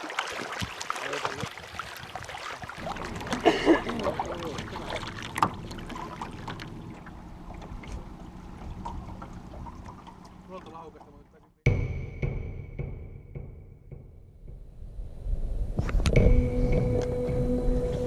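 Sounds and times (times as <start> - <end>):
knocks and rattles in rowboat: 0.0 - 11.4.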